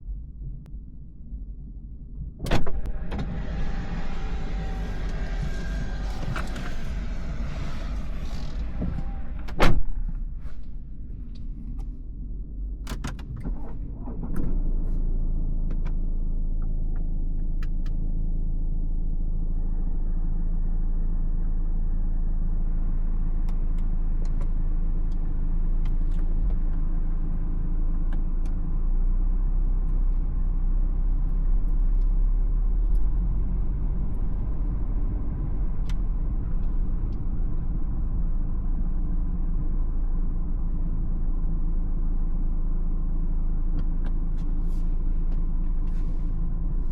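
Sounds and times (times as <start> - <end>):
low engine rumble: 0.0 - 46.9
road noise: 2.5 - 12.6, 30.1 - 46.9.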